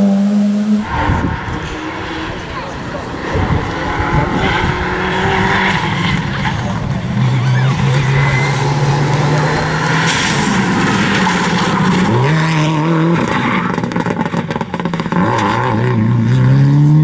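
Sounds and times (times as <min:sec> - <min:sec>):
broad rushing noise: 0:00.0 - 0:12.4
rally car engine at high revs: 0:00.0 - 0:17.0.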